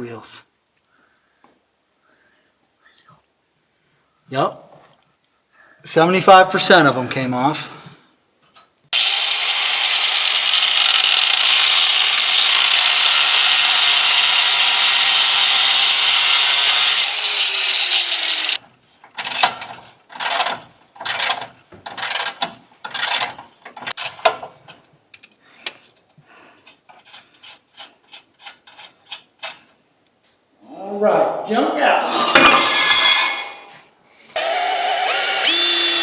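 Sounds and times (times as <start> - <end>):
power tool running with hiss: 9.0 - 18.6, 34.4 - 36.0.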